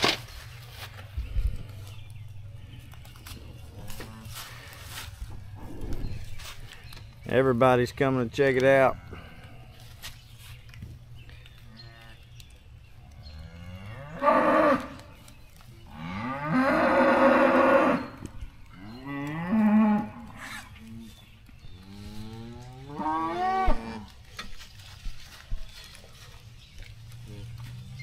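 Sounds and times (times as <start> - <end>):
cattle mooing: 13.4 - 15.0, 15.9 - 18.2.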